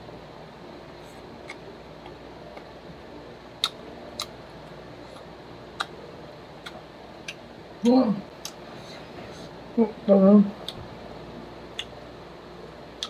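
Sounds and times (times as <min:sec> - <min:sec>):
steady low hum: 0:00.0 - 0:13.0
chewing mouth clicks and smacks: 0:05.1 - 0:06.0, 0:11.7 - 0:12.0.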